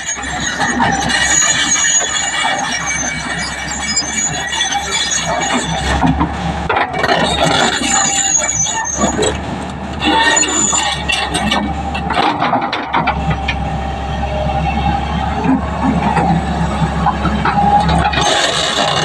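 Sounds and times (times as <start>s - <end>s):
high-pitched metallic squealing: 0.0s - 6.1s, 6.9s - 19.0s
low engine hum: 10.9s - 18.2s.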